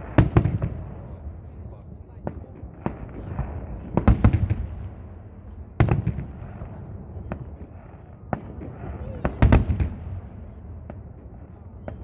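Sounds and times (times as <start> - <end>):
fireworks cracks: 0.0 - 1.0
fireworks bangs: 0.0 - 12.0.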